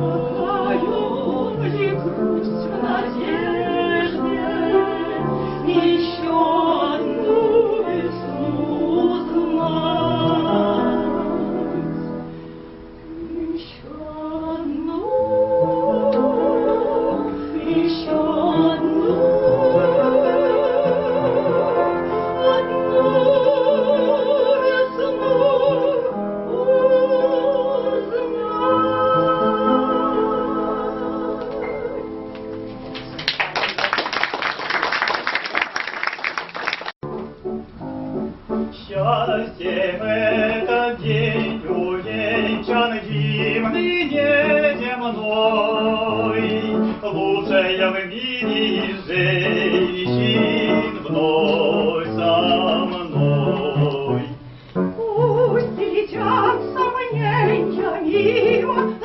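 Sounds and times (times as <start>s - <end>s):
operatic singing: 0.0s - 12.1s, 13.1s - 32.1s, 38.8s - 59.0s
steady accompaniment: 37.0s - 59.0s.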